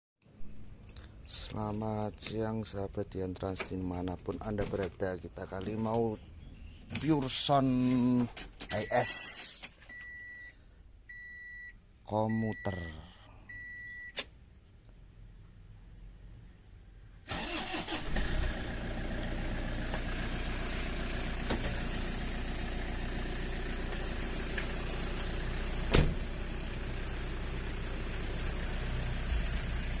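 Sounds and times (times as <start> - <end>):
van engine cranking and starting: 17.2 - 30.0
engine idling: 17.3 - 30.0.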